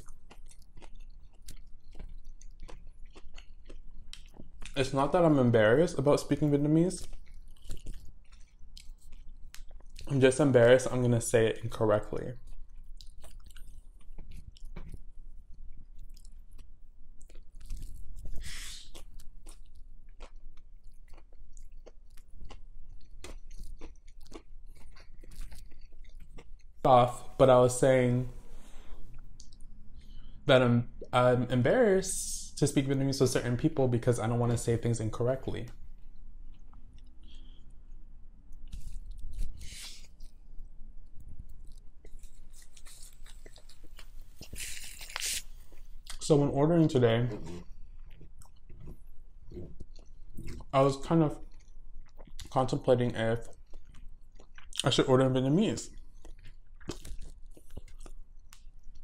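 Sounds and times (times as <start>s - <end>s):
chewing food: 0.0s - 27.4s, 28.7s - 30.4s, 35.7s - 46.4s, 47.3s - 59.0s.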